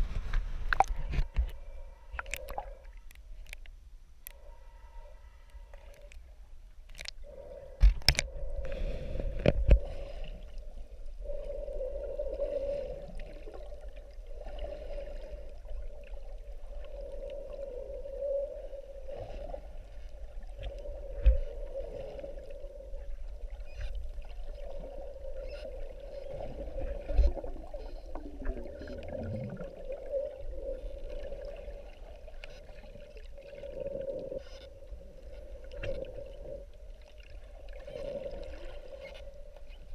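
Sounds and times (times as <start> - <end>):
underwater drone: 0.0 - 39.9
underwater clicks: 0.7 - 4.4, 6.8 - 9.8.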